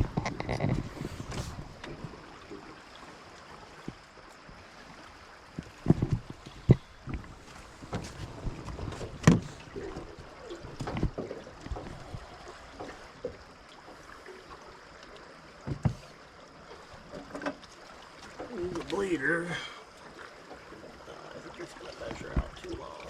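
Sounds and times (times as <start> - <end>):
knocks and thumps on a boat: 0.0 - 2.7, 5.5 - 14.2, 15.6 - 23.0
water washing: 0.0 - 23.0
wind: 0.0 - 23.0.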